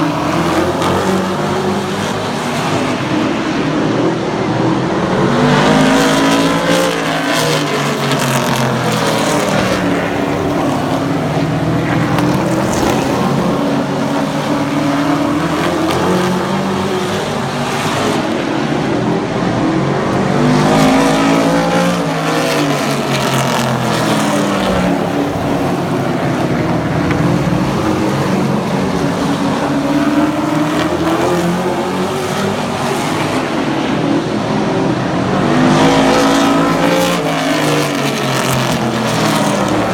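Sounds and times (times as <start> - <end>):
race car engines running hard: 0.0 - 39.9.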